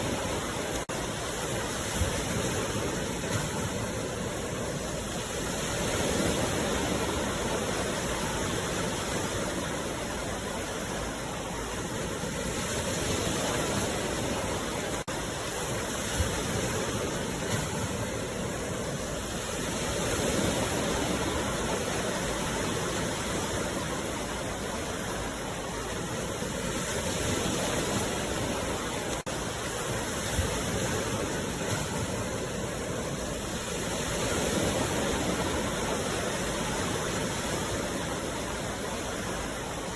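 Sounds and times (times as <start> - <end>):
sea waves washing ashore: 0.0 - 39.9.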